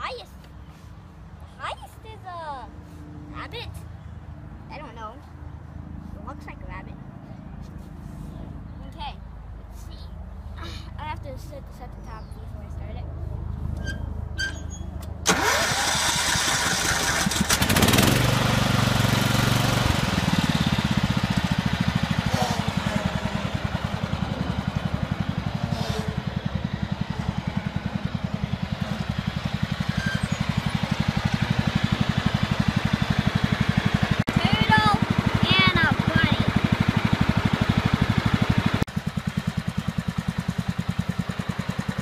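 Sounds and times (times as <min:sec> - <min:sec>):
lawn tractor engine running: 0:15.2 - 0:42.0.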